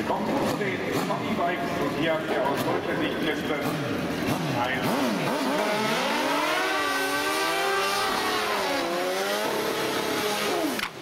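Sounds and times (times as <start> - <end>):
motorcycle engine at high revs: 0.0 - 11.0.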